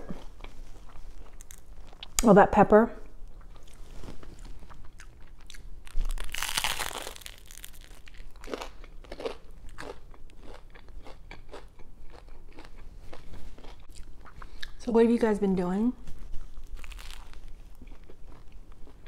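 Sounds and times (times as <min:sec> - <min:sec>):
crunching toasted sandwich: 0:03.4 - 0:14.4, 0:16.3 - 0:19.0.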